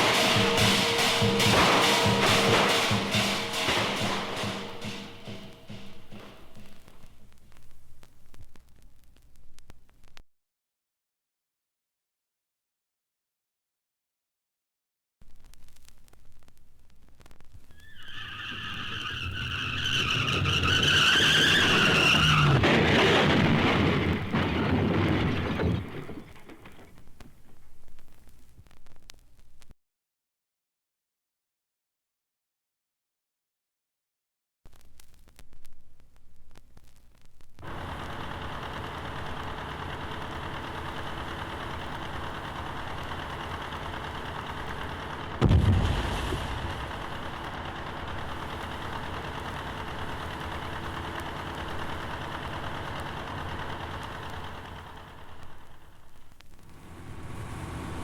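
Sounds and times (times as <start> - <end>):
tyres squealing in car skid: 17.8 - 26.8
rushing rumbling noise: 19.2 - 27.2, 37.6 - 55.8, 56.6 - 58.0.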